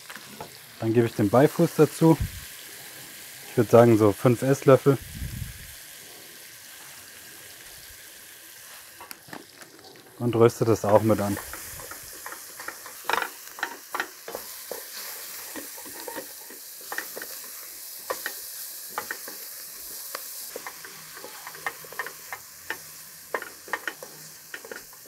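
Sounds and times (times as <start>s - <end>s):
vegetables sizzling in a pot: 0.0s - 25.0s
wooden spatula scraping a pot: 10.8s - 25.0s.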